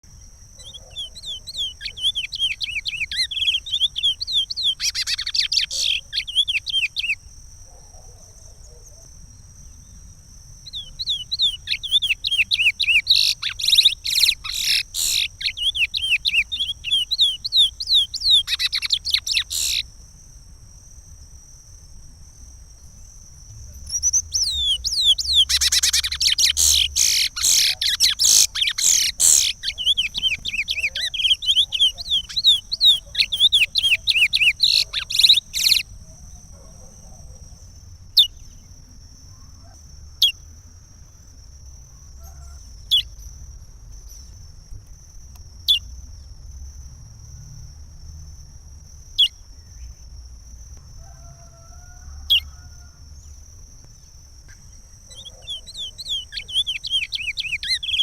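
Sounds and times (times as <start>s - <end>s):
finch singing chirped whistles: 0.6s - 7.2s, 10.7s - 19.8s, 23.8s - 35.9s, 55.1s - 58.0s.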